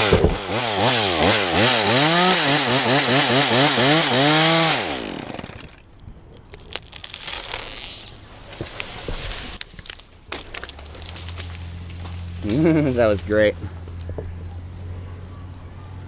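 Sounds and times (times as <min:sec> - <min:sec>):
sharp cracks and knocks: 0:00.0 - 0:00.5, 0:08.4 - 0:12.3
chainsaw cutting wood: 0:00.0 - 0:05.8.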